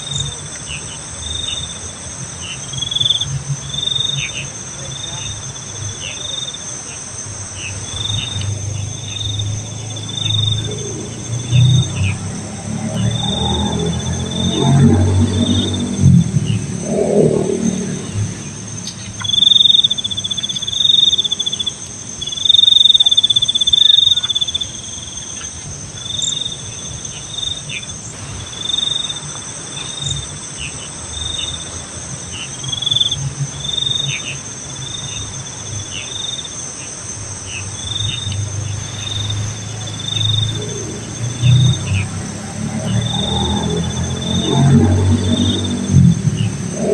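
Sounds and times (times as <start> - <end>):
insect trills: 0.0 - 24.2, 37.5 - 46.9
high-pitched insect drone: 7.2 - 19.9, 38.8 - 46.9.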